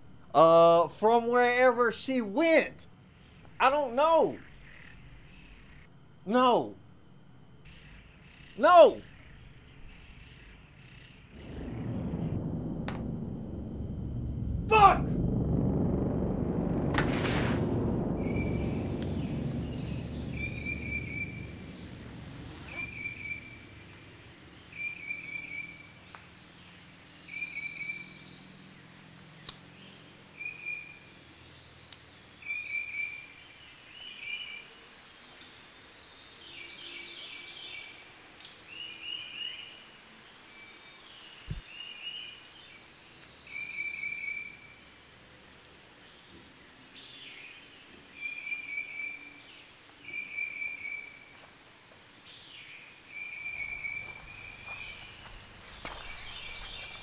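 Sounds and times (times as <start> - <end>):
faint high hum: 0.0 - 41.6
low rumble: 9.2 - 24.8.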